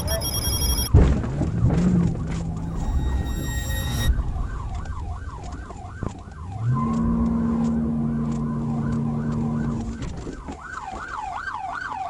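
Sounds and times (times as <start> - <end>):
road noise: 2.4 - 10.0
low steady drone: 2.5 - 10.0.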